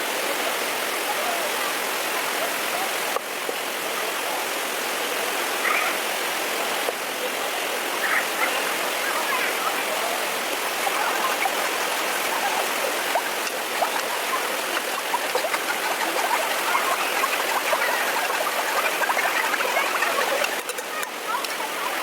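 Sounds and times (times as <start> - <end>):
stream water rushing: 0.0 - 22.0
water bubbling plops: 11.0 - 21.1.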